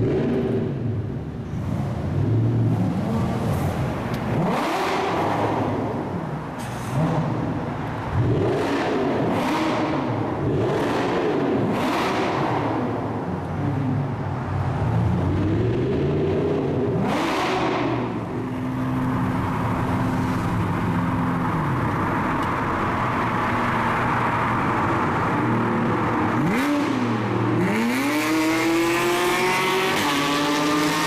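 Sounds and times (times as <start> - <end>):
sports car engine revving: 2.1 - 6.3, 6.9 - 13.3, 15.0 - 21.9, 25.8 - 31.0.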